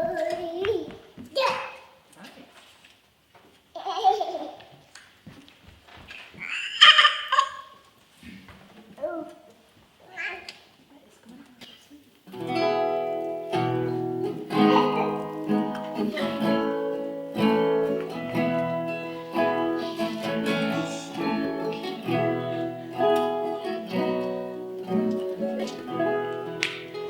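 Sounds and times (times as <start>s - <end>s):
acoustic guitar playing chords: 12.3s - 27.0s.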